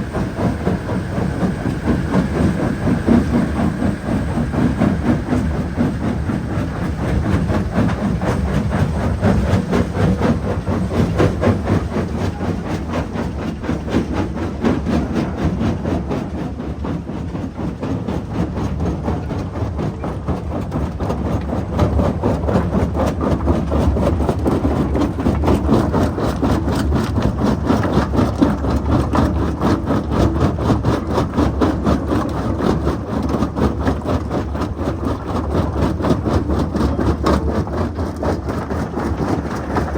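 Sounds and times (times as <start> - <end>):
diesel engines droning: 0.0 - 12.7
rock crusher rumbling and rattling: 0.0 - 15.6, 20.0 - 39.9.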